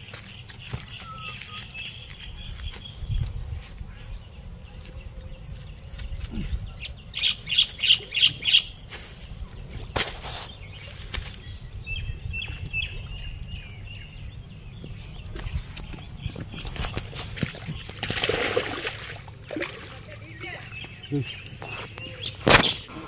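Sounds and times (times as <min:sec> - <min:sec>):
high insect drone: 0:00.0 - 0:22.9
bird calls: 0:00.0 - 0:23.0
birdsong: 0:00.0 - 0:23.0
soft bird chirping: 0:00.1 - 0:03.3, 0:09.4 - 0:22.9.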